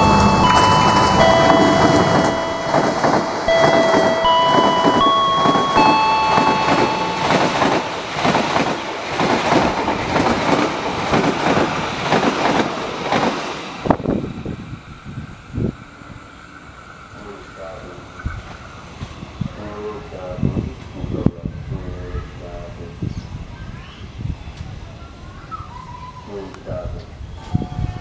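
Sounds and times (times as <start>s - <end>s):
level-crossing warning chime: 0.0s - 8.8s
train wheels clattering: 0.0s - 13.5s.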